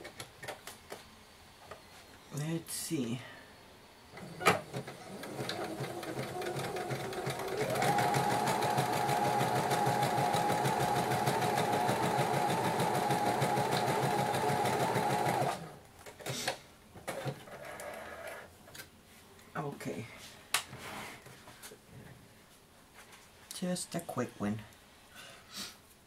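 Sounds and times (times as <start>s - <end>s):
sewing machine stitching: 4.2s - 16.5s.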